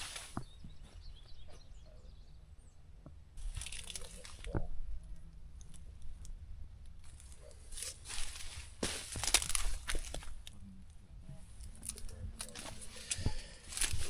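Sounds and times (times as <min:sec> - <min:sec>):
corn leaves rustling and crunching: 0:00.0 - 0:00.5, 0:03.4 - 0:04.6, 0:07.0 - 0:10.6, 0:11.5 - 0:14.0
steady low rumble: 0:00.0 - 0:14.0.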